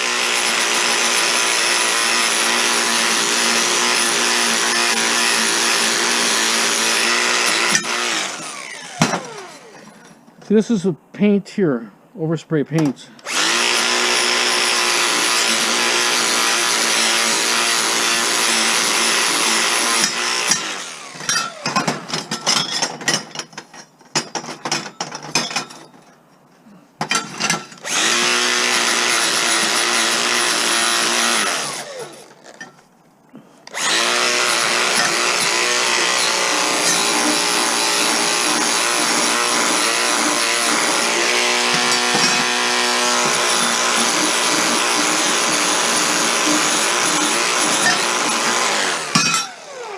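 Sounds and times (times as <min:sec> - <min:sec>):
electric rotary tool grinding metal: 0:00.0 - 0:10.0, 0:13.2 - 0:22.0, 0:27.8 - 0:32.7, 0:33.7 - 0:49.9.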